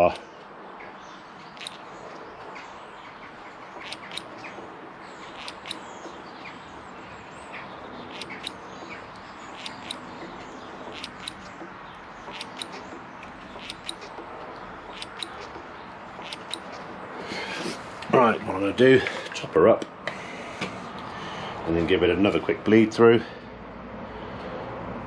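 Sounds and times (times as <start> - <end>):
small birds chirping: 0.0 - 19.5.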